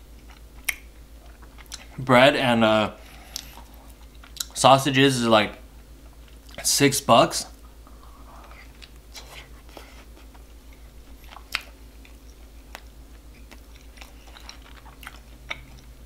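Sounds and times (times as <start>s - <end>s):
person chewing food: 0.1s - 2.0s, 3.1s - 4.6s, 6.0s - 6.6s, 7.6s - 16.0s.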